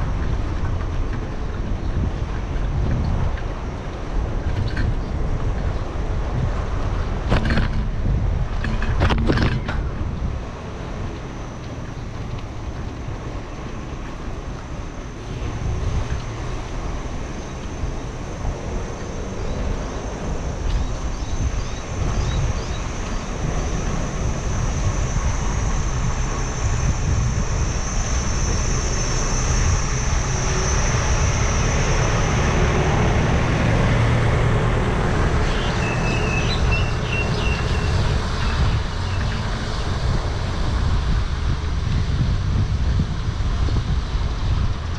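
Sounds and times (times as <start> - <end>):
road rumble: 0.0 - 44.9
wind rushing over microphone: 0.0 - 44.9.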